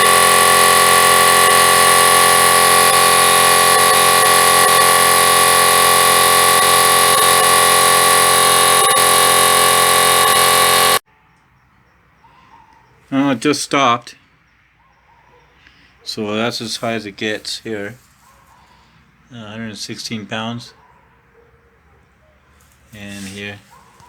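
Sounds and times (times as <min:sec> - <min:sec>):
electric air compressor running: 0:00.0 - 0:11.0.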